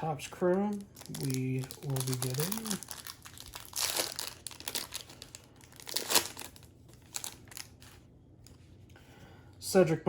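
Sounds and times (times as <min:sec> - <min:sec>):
foil wrapper tearing and crinkling: 0:00.4 - 0:08.0.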